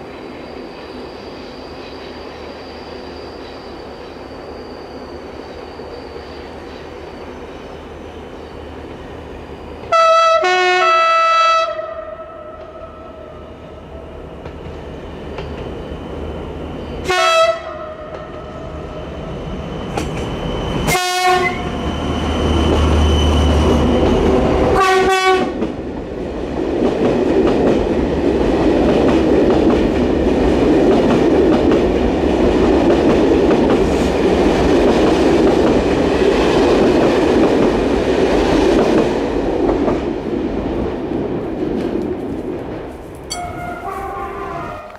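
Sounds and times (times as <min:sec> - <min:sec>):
train coaches rumbling over rails: 0:00.0 - 0:44.9
locomotive horn blasts: 0:09.9 - 0:13.3, 0:17.0 - 0:18.4, 0:20.9 - 0:21.7, 0:24.7 - 0:25.6, 0:43.3 - 0:44.9.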